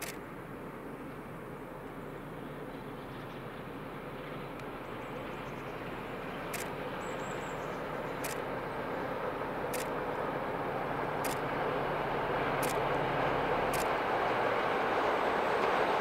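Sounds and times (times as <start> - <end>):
sharp clicks: 0.0 - 0.2, 6.5 - 6.7, 8.2 - 8.4, 9.7 - 10.0, 11.2 - 11.4, 12.6 - 12.8, 13.7 - 14.0
diesel train rumbling: 0.0 - 16.0.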